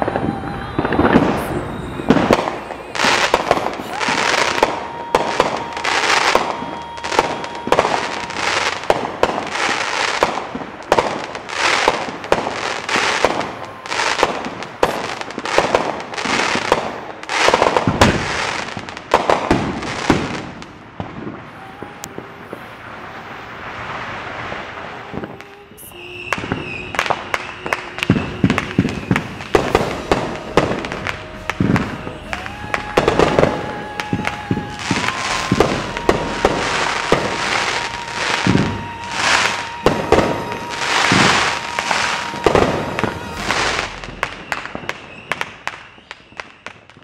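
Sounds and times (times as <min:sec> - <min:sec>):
firework shots crackling: 0:00.0 - 0:47.0.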